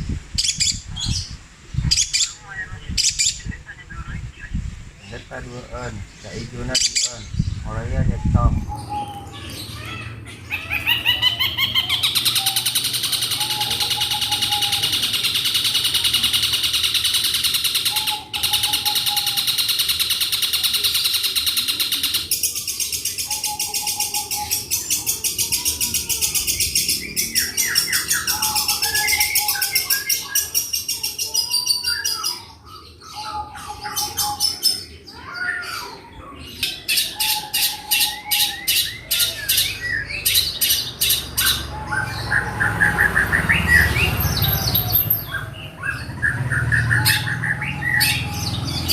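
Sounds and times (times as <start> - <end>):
shrike singing fast trills: 6.2 - 31.6.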